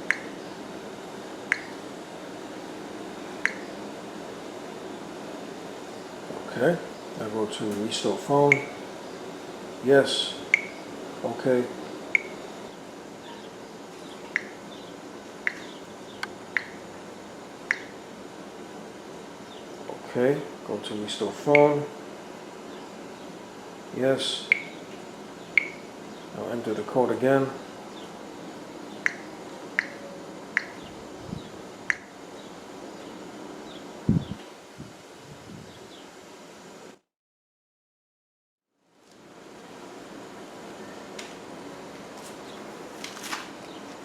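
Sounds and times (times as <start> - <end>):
phone keypad clicks: 1.5 - 1.8, 3.4 - 3.7, 12.2 - 12.4, 14.3 - 14.6, 15.4 - 15.7, 17.7 - 17.9, 24.5 - 24.8, 29.0 - 30.0.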